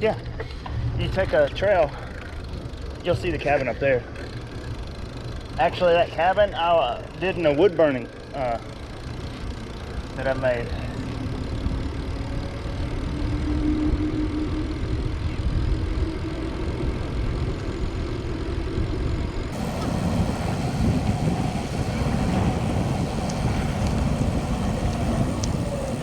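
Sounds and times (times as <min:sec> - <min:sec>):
wind rumbling on microphone: 0:11.5 - 0:26.0.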